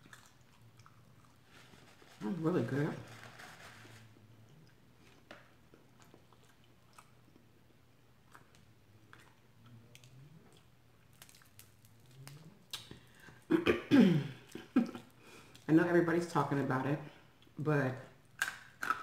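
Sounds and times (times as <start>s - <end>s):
person chewing food: 0.0s - 2.1s, 3.9s - 13.5s, 18.3s - 19.0s.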